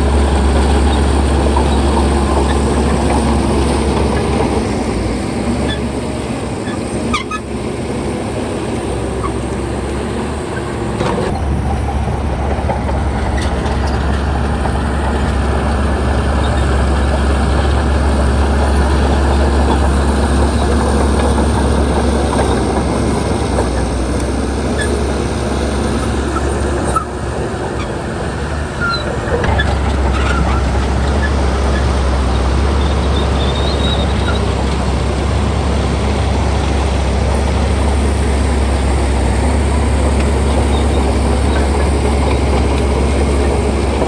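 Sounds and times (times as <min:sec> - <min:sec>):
bulldozer diesel engine droning: 0:00.0 - 0:44.0.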